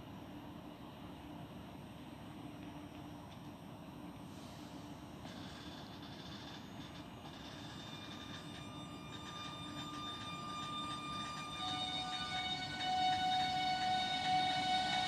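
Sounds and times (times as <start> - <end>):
train rumble: 4.7 - 15.0
high whining tones: 6.1 - 15.0.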